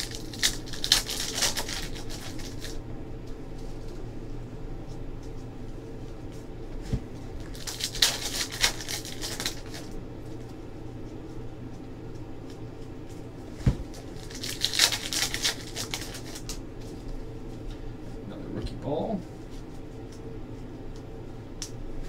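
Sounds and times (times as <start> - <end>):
steady low hum: 0.0 - 22.0
soft thumps: 13.6 - 13.9.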